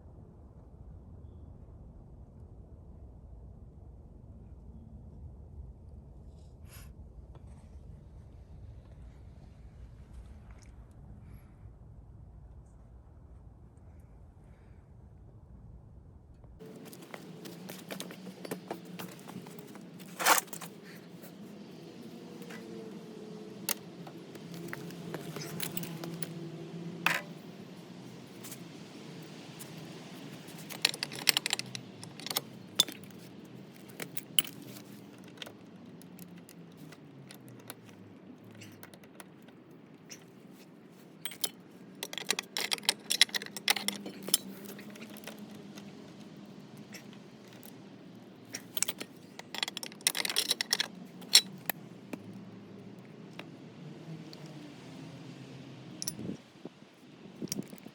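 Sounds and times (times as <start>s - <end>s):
metal parts clinking: 16.6s - 52.4s, 56.0s - 56.3s, 57.4s - 57.9s.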